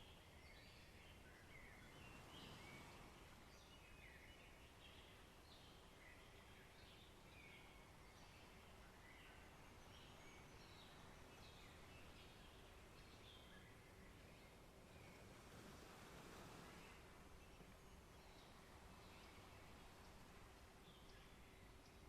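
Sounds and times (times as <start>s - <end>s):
soft steady background hiss: 0.0s - 22.0s.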